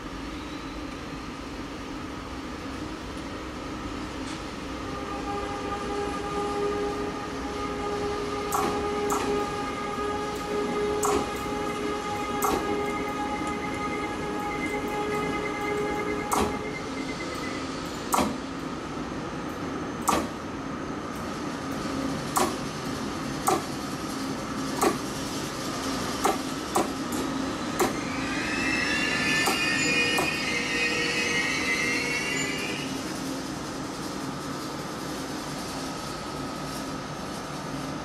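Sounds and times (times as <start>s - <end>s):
high metallic wheel squeal: 5.0s - 17.7s, 27.4s - 33.5s
train wheels clicking over rail joints: 11.0s - 11.4s, 22.3s - 22.7s, 23.4s - 23.8s, 24.7s - 25.4s, 26.1s - 28.0s.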